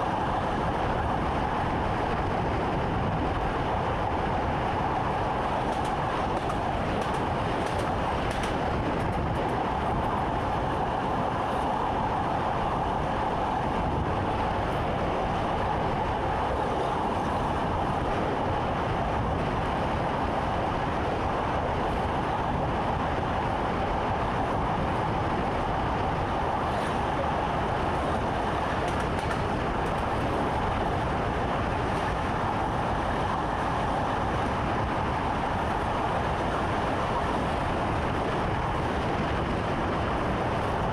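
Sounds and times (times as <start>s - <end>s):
constant mid-pitched hum: 0.0s - 40.9s
train rumble: 0.0s - 40.9s.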